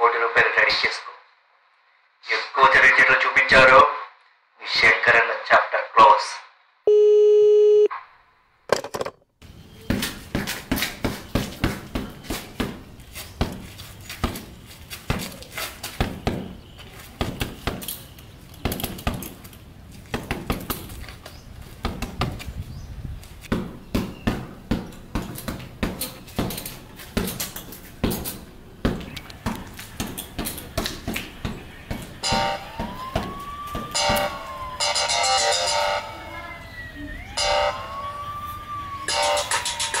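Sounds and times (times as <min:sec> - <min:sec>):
fists striking punching bag: 0:28.8 - 0:34.2.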